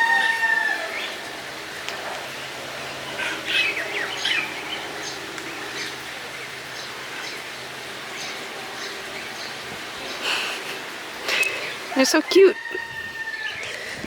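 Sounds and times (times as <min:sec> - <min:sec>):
small birds chirping: 0:02.6 - 0:12.6.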